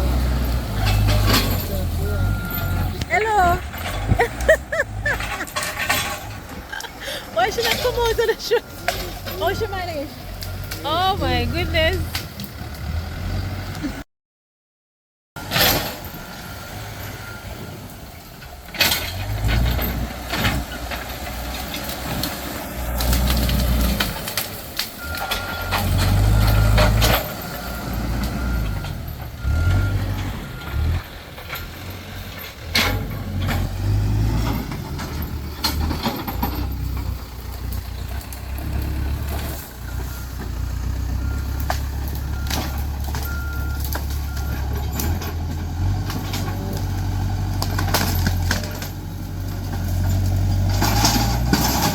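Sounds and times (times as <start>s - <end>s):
heavy diesel engine rumbling: 0.0s - 14.0s, 15.4s - 51.9s
clanks and knocks: 3.0s - 6.9s, 30.1s - 37.2s
backup alarm beeping: 7.5s - 12.0s.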